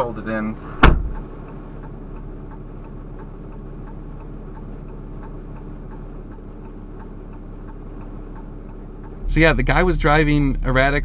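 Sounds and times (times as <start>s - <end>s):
diesel engine idling: 0.0s - 11.0s
turn signal ticking: 0.0s - 11.0s.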